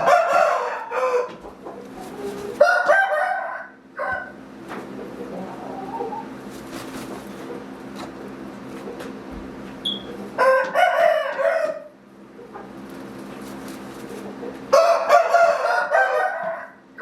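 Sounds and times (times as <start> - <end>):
rooster crowing: 0.0 - 1.4, 2.5 - 4.4, 10.4 - 12.0, 14.7 - 17.0
steady low hum: 0.0 - 15.1.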